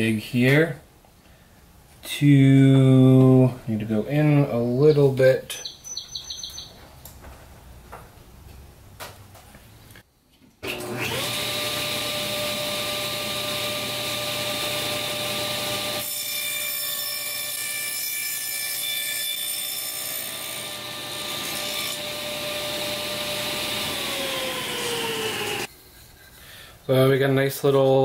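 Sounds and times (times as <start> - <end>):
table saw running: 10.6 - 17.6, 18.8 - 25.7
saw blade cutting wood: 10.7 - 26.4.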